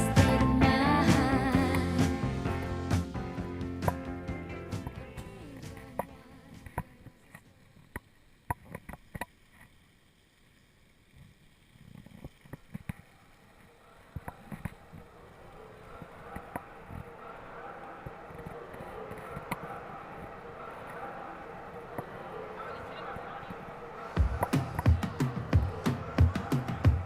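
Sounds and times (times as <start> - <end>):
rushing background noise: 13.6 - 27.0.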